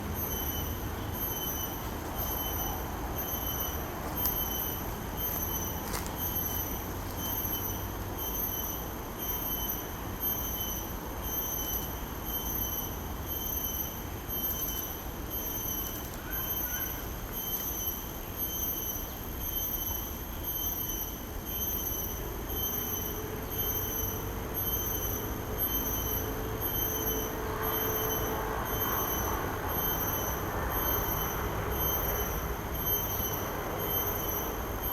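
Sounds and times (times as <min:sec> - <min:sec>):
insects calling: 0:00.0 - 0:34.9.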